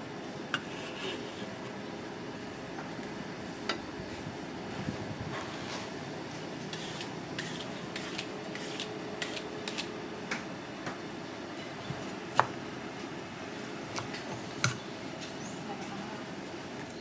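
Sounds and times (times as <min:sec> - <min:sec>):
steady background noise: 0:00.0 - 0:17.0
utensils scraping: 0:06.7 - 0:09.9.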